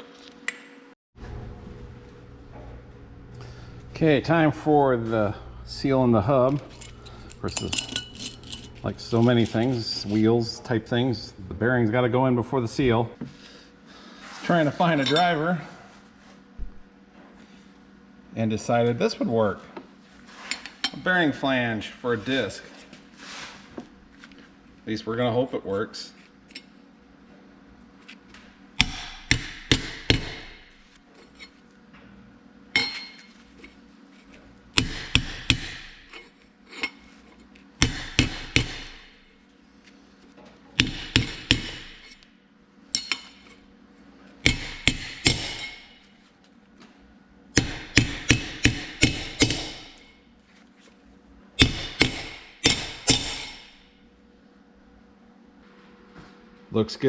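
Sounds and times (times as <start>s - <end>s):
hammer striking metal: 28.8s - 30.8s, 34.8s - 36.1s, 37.8s - 39.2s, 40.8s - 42.2s, 42.9s - 43.4s, 44.4s - 46.0s, 47.6s - 50.1s, 51.6s - 53.8s.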